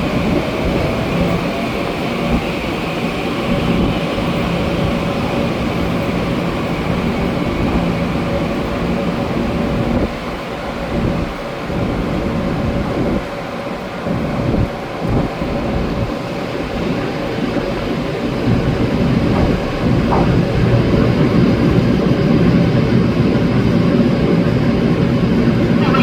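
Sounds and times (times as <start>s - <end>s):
wheels rumbling on rails: 0.0s - 26.0s.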